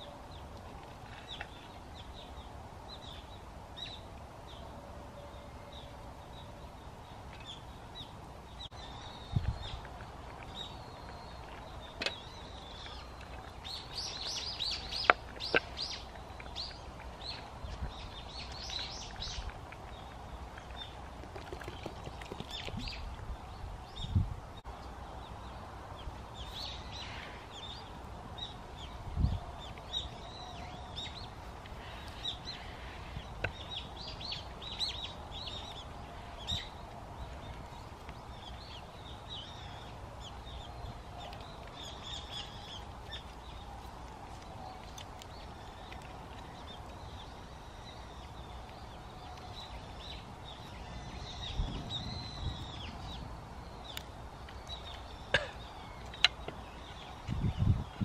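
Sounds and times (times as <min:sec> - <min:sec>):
small birds chirping: 0:05.2 - 0:58.0.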